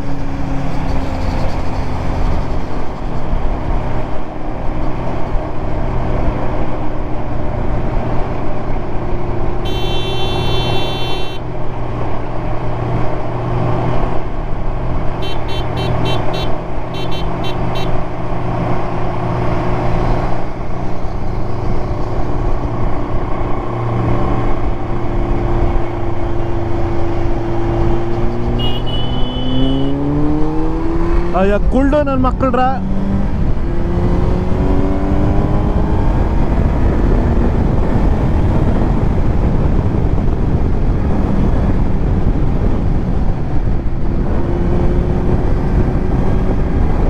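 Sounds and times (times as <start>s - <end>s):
motorcycle engine cruising: 0.0s - 31.7s, 32.8s - 47.0s
wind rushing over microphone: 0.0s - 47.0s
short rapid horn beeps: 9.6s - 11.4s, 15.2s - 18.0s, 28.4s - 30.0s
vehicle horn: 9.6s - 11.5s, 15.2s - 18.2s, 27.6s - 30.1s.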